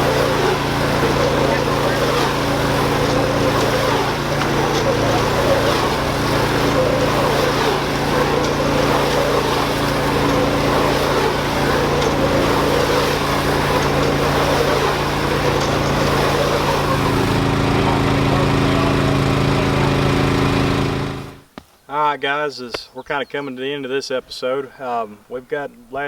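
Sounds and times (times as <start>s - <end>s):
tractor engine running: 0.0s - 21.6s.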